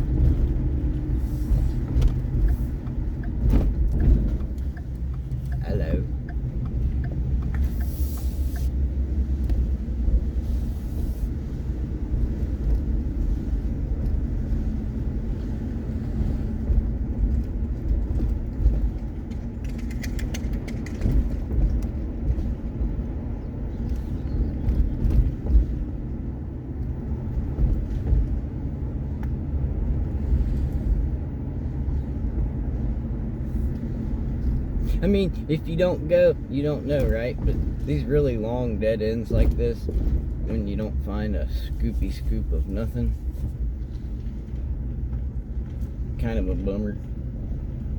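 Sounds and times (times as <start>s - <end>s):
vehicle engine and road rumble: 0.0s - 47.9s
rapid clicks: 19.0s - 21.9s.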